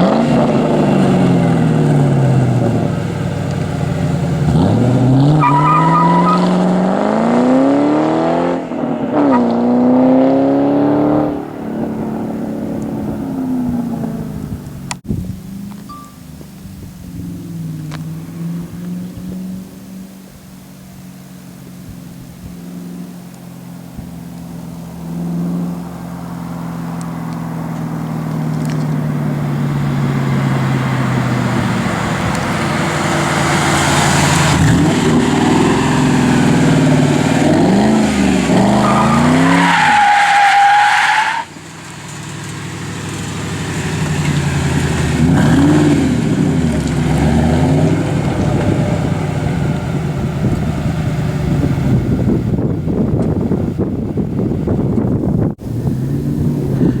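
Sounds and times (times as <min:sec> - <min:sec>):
car engine accelerating: 0:00.0 - 0:57.0
high-pitched squeal: 0:05.1 - 0:06.8, 0:30.0 - 0:41.6.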